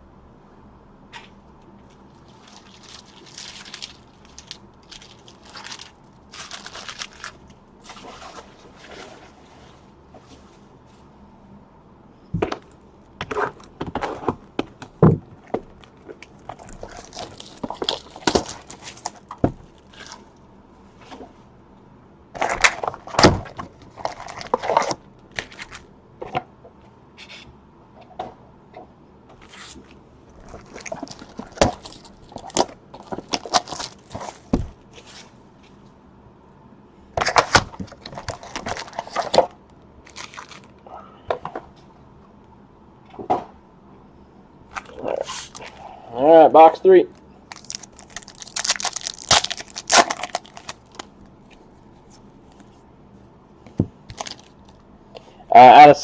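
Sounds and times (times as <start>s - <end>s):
foil packs crinkling and tearing: 2.2s - 8.4s, 15.5s - 20.3s, 22.4s - 25.9s, 30.4s - 34.8s, 37.2s - 40.8s, 44.8s - 45.8s, 47.5s - 51.2s, 54.1s - 54.8s.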